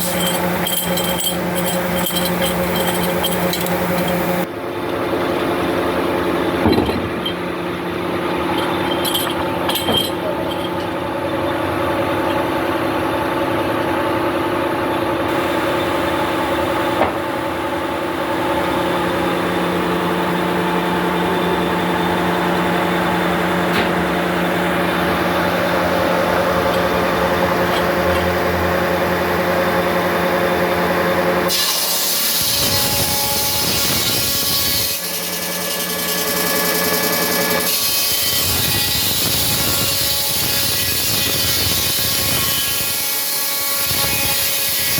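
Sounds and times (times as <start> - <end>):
machinery humming: 0.0 - 40.3
saw cutting through wood: 31.4 - 44.9.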